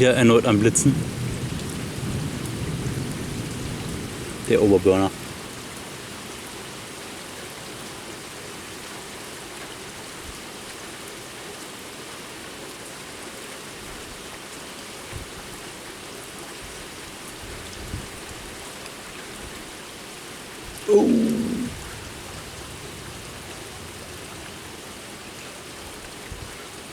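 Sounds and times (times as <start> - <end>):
rain falling: 0.0 - 15.0, 20.9 - 26.9.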